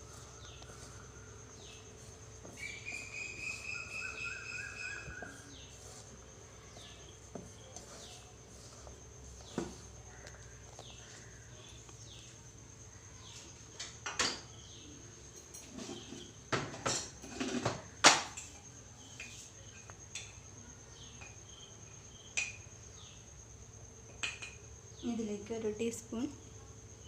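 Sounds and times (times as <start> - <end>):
mixing in a bowl: 0.0 - 12.3
high insect trill: 0.0 - 27.0
knocks and clinks against bowl: 24.1 - 24.6.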